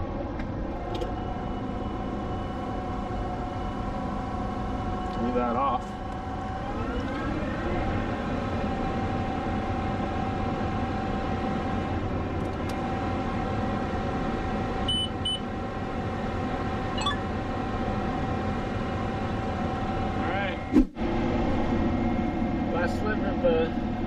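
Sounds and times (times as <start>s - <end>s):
short electronic beeps: 14.9s - 15.4s, 17.0s - 17.2s.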